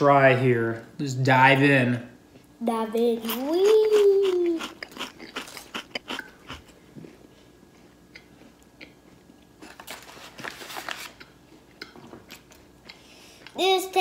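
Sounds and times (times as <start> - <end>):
crunchy chewing: 3.3 - 13.6.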